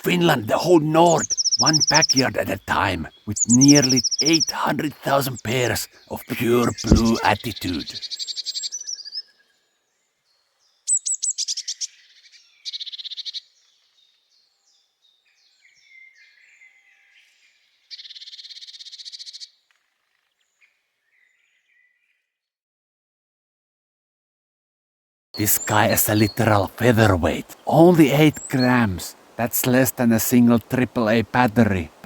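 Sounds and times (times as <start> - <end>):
blue tit singing: 0.0 - 9.5, 10.6 - 14.1, 17.9 - 19.6, 25.4 - 32.0
bird soft calls: 0.0 - 22.2, 25.4 - 32.0.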